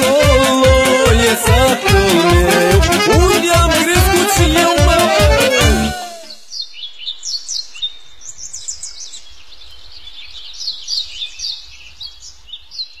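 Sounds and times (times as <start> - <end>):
songbirds chirping and singing: 6.1 - 13.0.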